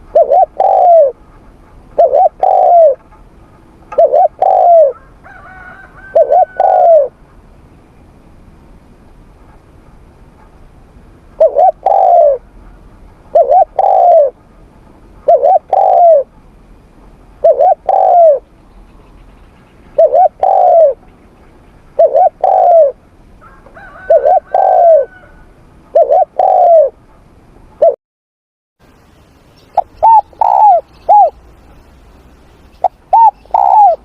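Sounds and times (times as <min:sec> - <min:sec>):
dove cooing: 0:00.0 - 0:07.3, 0:11.4 - 0:14.4, 0:15.2 - 0:16.3, 0:17.4 - 0:18.5, 0:19.6 - 0:21.1, 0:22.0 - 0:27.0, 0:29.7 - 0:31.4, 0:32.7 - 0:34.0.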